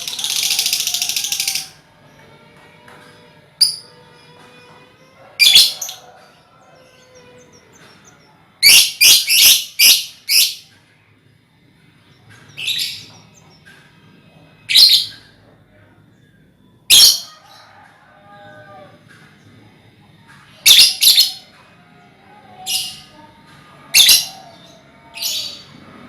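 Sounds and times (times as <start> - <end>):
lovebirds shrieking: 0.0 - 1.8, 5.4 - 7.9.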